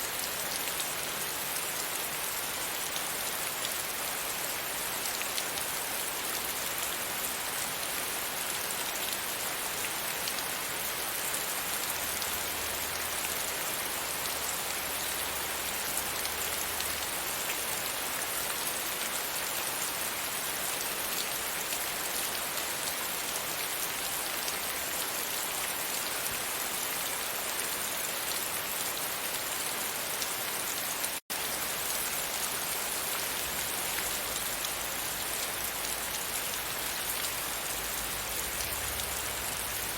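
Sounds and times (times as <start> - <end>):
rain falling against a window: 0.0 - 39.9.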